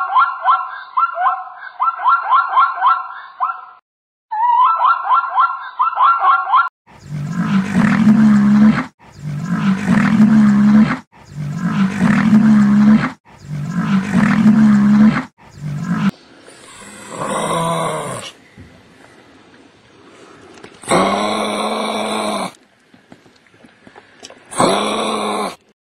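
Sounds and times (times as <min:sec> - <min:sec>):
zebra yelping call: 0:04.3 - 0:06.6.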